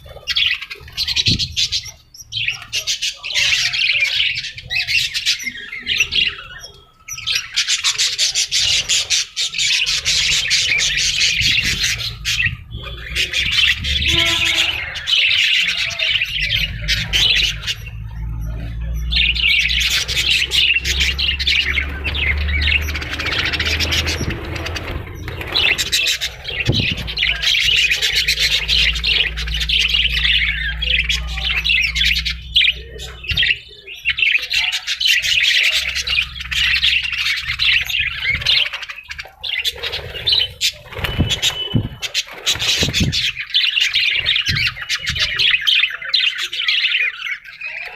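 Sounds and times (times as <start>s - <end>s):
parrots chattering: 0.0s - 47.9s.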